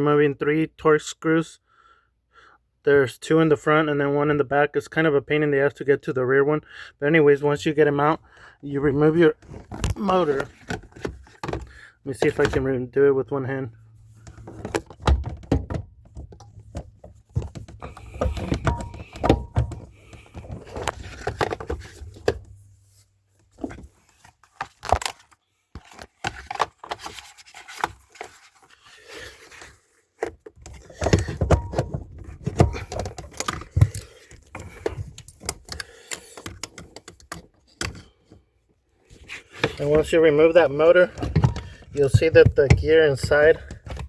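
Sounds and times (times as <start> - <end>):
tools clicking and rattling: 16.1 - 22.6.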